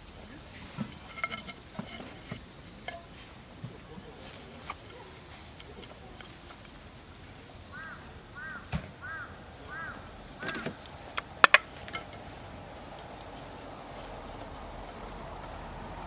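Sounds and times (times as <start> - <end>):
bird calling: 7.6 - 12.1.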